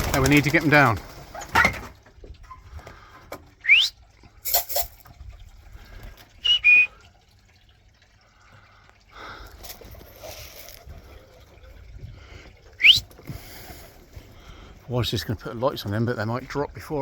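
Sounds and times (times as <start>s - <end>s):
person whistling: 3.6s - 4.0s, 6.4s - 7.0s, 12.8s - 13.1s.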